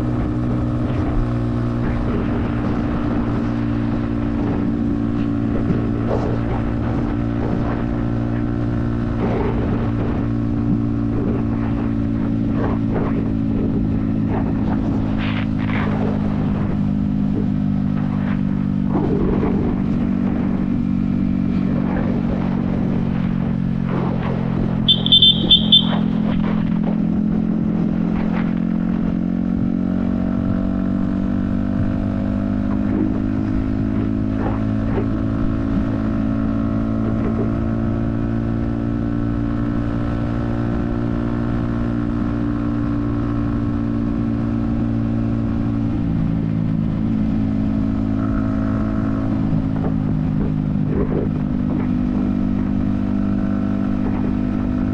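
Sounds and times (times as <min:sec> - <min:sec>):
motorcycle engine running: 0:00.0 - 0:54.9
rapid high beeps: 0:24.9 - 0:26.1.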